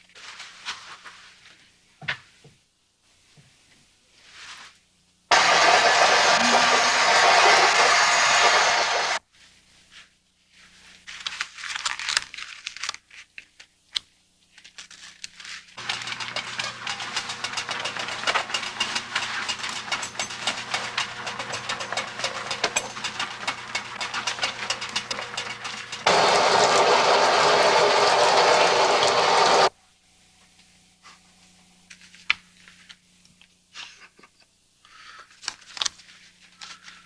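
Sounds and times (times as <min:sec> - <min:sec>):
shower water spraying: 0:05.3 - 0:09.2, 0:22.7 - 0:29.7.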